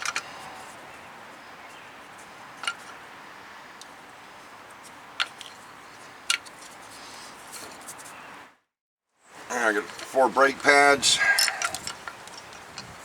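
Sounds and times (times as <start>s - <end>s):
sharp clicks of parts handled: 0.0s - 0.4s, 2.6s - 3.0s, 5.2s - 5.6s, 6.2s - 6.8s, 11.3s - 13.0s
steady background hiss: 9.3s - 13.0s.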